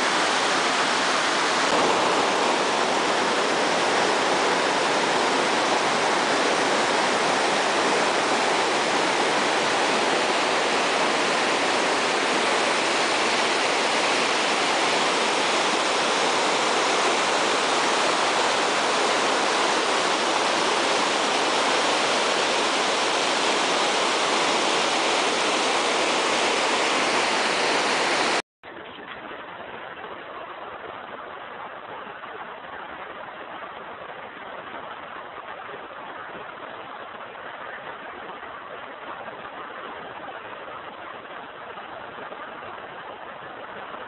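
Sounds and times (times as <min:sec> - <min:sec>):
waterfall rushing: 0:00.0 - 0:28.4
dull rush of water: 0:00.0 - 0:44.0.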